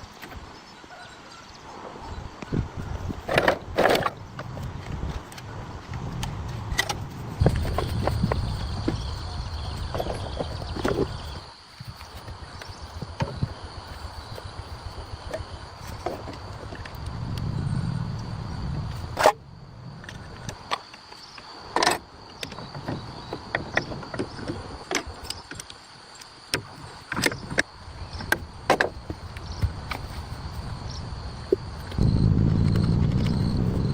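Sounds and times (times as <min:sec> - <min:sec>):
low rumble: 0:16.5 - 0:20.5.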